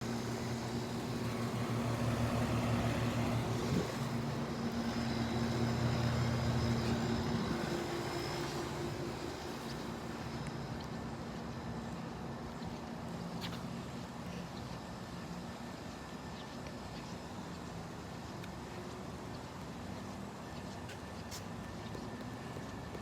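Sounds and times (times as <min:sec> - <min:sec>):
air conditioner humming: 0:00.0 - 0:10.0.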